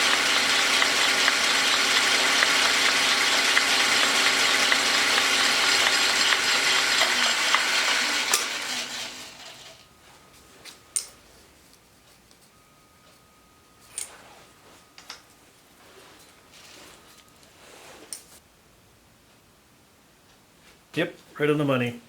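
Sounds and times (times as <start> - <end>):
metal lathe gear drive whirring: 0.0 - 9.9.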